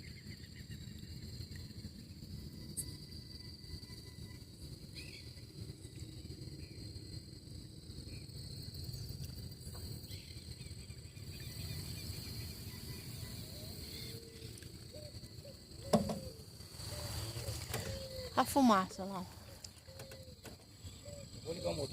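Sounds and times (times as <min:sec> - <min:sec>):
insects trilling: 0:00.0 - 0:21.9
sudden knock: 0:15.9 - 0:16.3.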